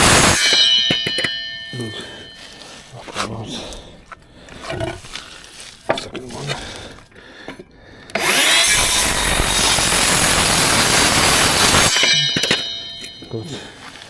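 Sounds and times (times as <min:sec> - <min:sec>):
circular saw cutting wood: 0:00.0 - 0:03.3, 0:08.1 - 0:14.0.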